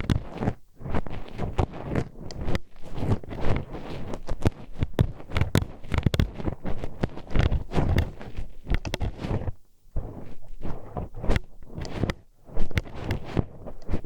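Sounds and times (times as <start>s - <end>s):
hairpin scraping in microphone: 0.0s - 14.0s.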